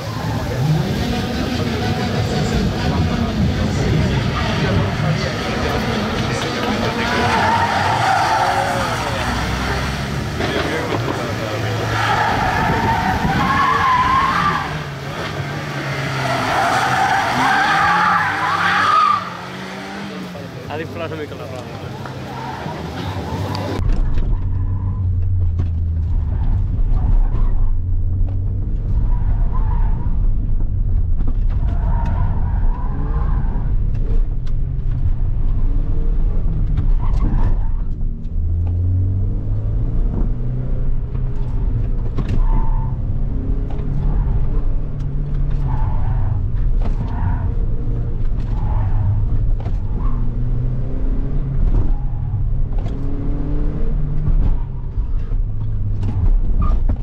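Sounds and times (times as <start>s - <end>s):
car engine revving: 0.0s - 57.0s
tyre squeals: 11.8s - 14.9s.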